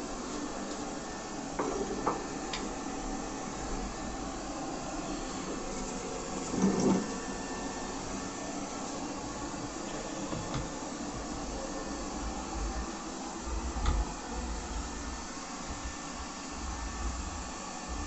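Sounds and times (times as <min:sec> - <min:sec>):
robot vacuum motor and suction: 0:00.3 - 0:18.0.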